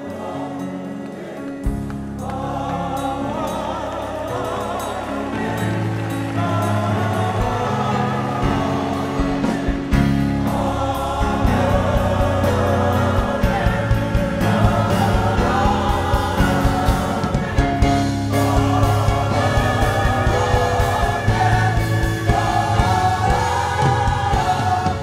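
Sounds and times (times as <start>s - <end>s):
choir singing: 0.0s - 25.0s
drums: 0.1s - 25.0s
bass notes: 1.7s - 25.0s.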